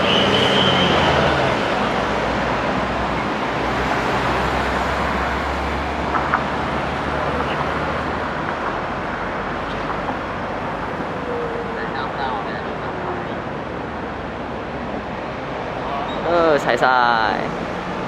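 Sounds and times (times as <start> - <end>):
tyre noise of passing traffic: 0.0 - 18.0.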